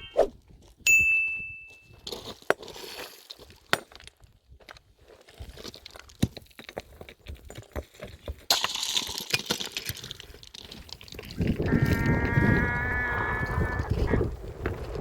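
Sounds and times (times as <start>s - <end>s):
farm animal bleating: 11.4s - 14.3s.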